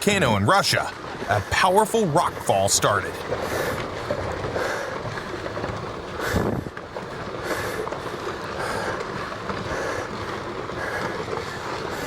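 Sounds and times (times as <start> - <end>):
rocks tumbling rumble: 0.0 - 12.0.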